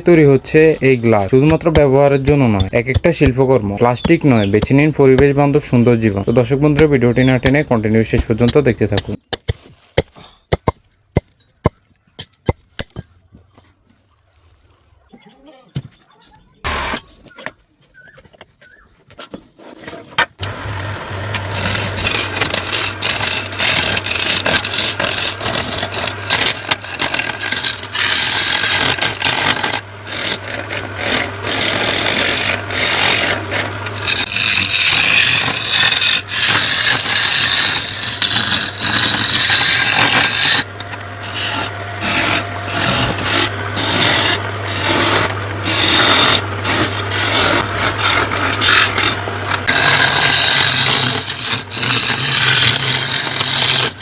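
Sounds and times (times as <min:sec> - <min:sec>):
tool rasping against wood: 0:00.0 - 0:09.2, 0:16.7 - 0:17.2, 0:19.6 - 0:54.0
steady low hum: 0:20.4 - 0:54.0.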